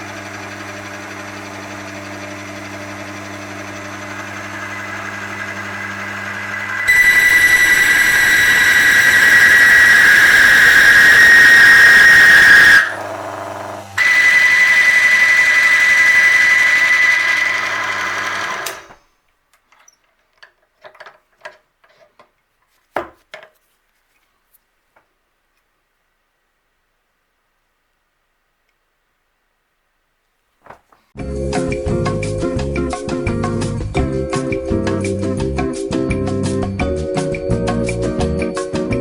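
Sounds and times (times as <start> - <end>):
motor humming: 0.0 - 19.0
metal block squealing loudly: 6.7 - 13.2.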